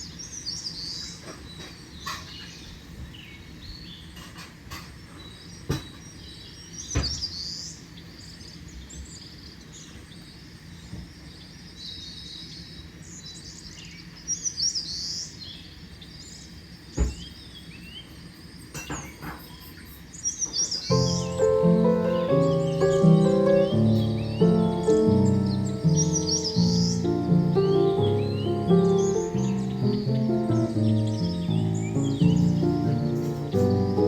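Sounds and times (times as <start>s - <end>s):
low background noise: 0.0s - 34.0s
birds chirping and calling: 20.7s - 34.0s.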